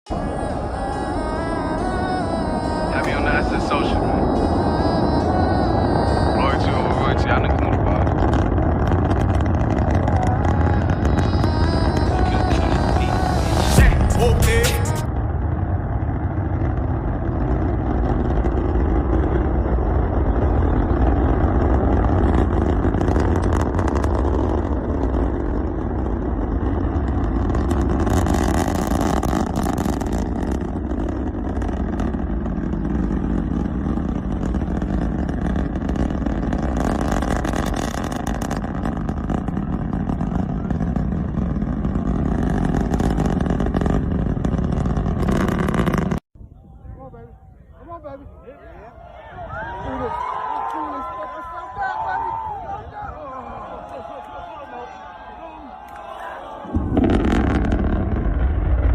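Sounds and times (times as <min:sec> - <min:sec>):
rocket engines roaring: 0:00.1 - 0:58.9.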